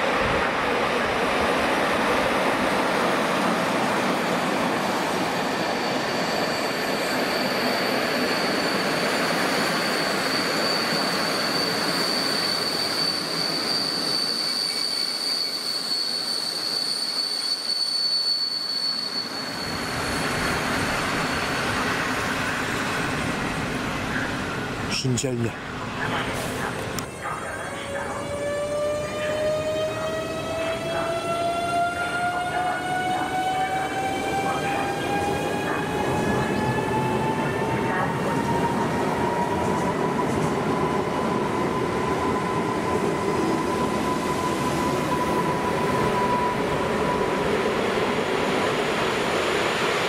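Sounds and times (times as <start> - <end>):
train running on rails: 0.0 - 50.0
high-pitched metal squeal: 5.6 - 21.8.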